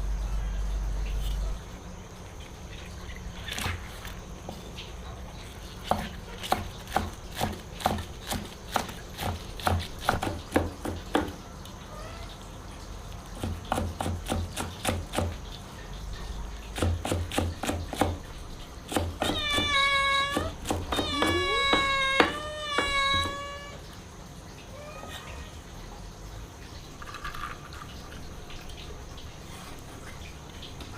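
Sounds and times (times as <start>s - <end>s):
cat meowing: 11.9s - 12.4s, 19.2s - 23.9s
sharp irregular knocks: 18.9s - 23.5s.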